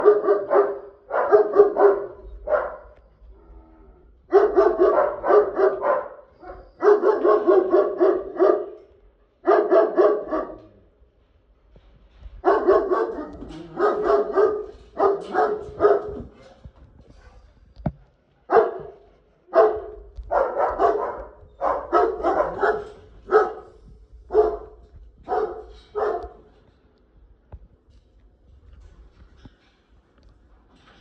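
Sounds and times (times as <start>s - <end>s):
dog barking: 0.0s - 3.0s, 4.3s - 10.8s, 12.4s - 16.4s, 18.5s - 26.5s.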